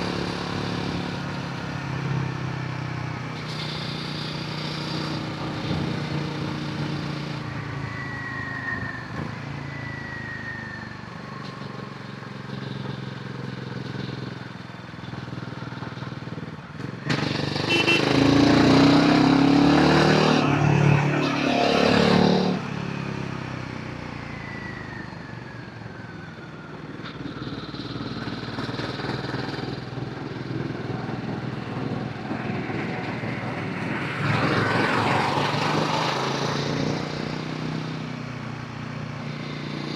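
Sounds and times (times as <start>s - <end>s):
motorcycle engine running: 11.2s - 20.5s, 26.8s - 38.0s.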